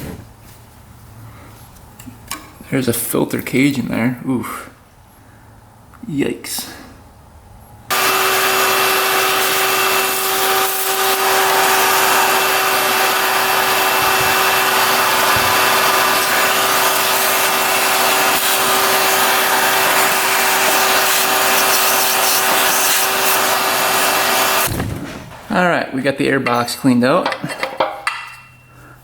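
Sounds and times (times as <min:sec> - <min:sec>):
shop vacuum whining: 0:07.9 - 0:24.8.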